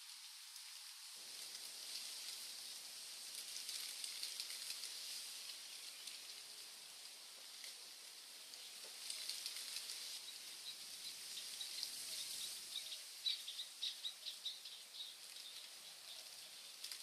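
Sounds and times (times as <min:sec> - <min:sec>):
faint high hiss: 0:00.0 - 0:17.0
birds chirping faintly: 0:08.3 - 0:16.9.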